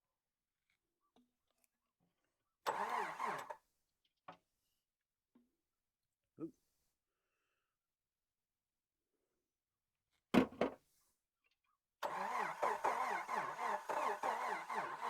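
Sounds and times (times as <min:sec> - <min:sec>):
engine cranking on starter: 0:02.7 - 0:03.6, 0:12.0 - 0:15.0.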